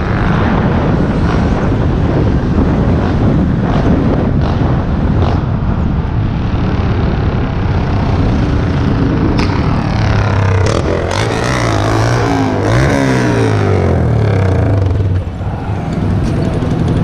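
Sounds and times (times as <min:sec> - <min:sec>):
road traffic: 0:00.0 - 0:17.0
vehicle passing close by: 0:06.5 - 0:17.0.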